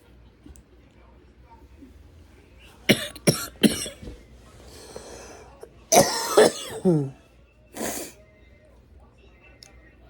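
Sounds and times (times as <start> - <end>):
person coughing: 2.9 - 4.1, 4.8 - 7.2.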